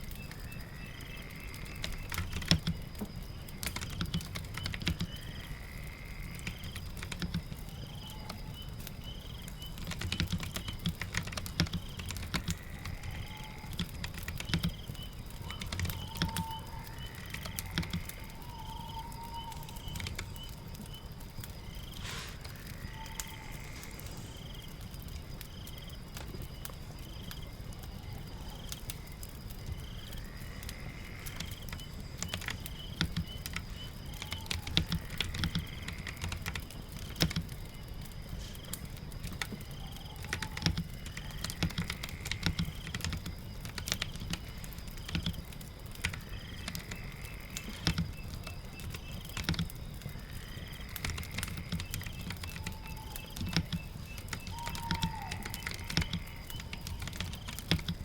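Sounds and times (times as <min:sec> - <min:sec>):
crackling fire: 0:00.0 - 0:58.0
rain: 0:00.0 - 0:58.0
faint gliding calls: 0:12.1 - 0:25.5, 0:50.0 - 0:57.8
keyboard typing clicks: 0:51.0 - 0:58.0.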